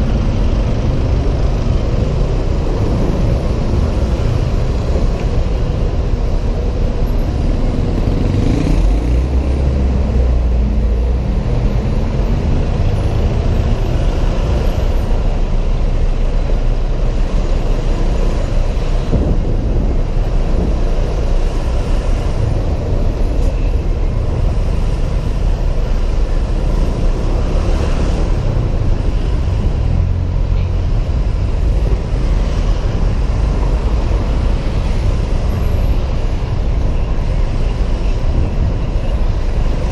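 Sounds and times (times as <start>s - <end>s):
surrounding vehicles in traffic: 0.0s - 39.9s
wind on camera microphone: 18.1s - 25.7s.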